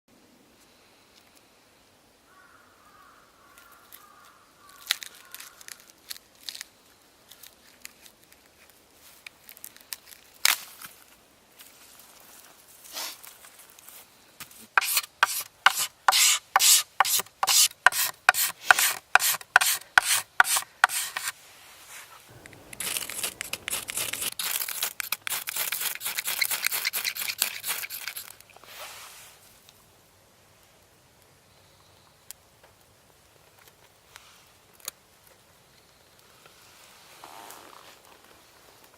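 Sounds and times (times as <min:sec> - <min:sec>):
knife scraping bamboo: 0:14.8 - 0:21.4, 0:23.1 - 0:28.8.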